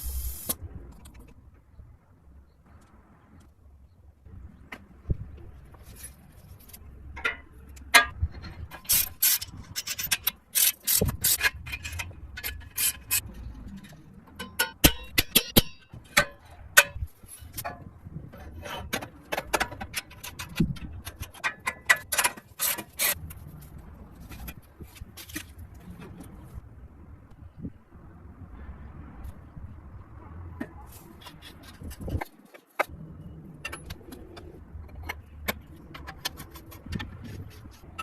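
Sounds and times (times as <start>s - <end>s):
tools scraping metal: 8.4s - 13.3s, 19.8s - 23.2s.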